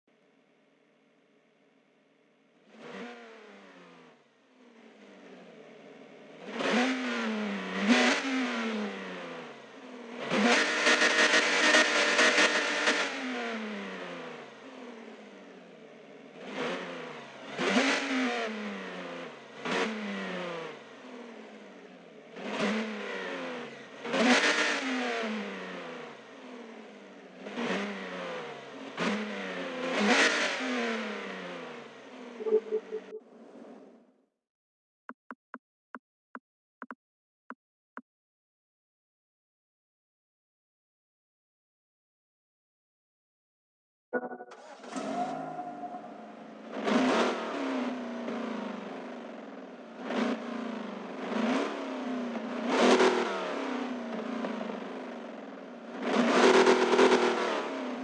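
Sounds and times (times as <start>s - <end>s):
engine revving: 2.6s - 33.9s, 44.5s - 58.0s.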